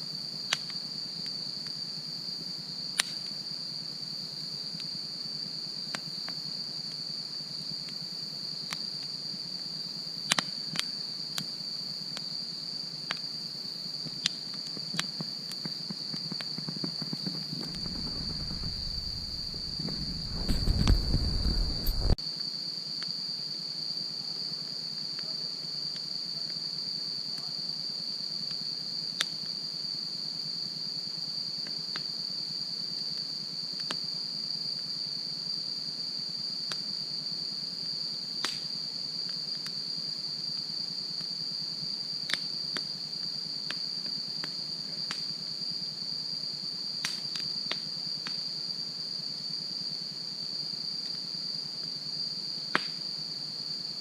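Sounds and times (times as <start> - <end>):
crickets trilling: 0.0 - 54.0
campfire crackling: 14.2 - 22.2
low rumble: 17.5 - 22.2.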